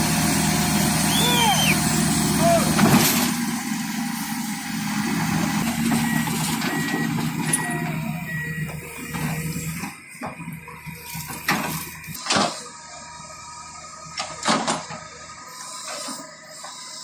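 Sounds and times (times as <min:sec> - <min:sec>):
heavy machine engine running: 0:00.0 - 0:17.0
back-up alarm beeping: 0:05.8 - 0:09.9.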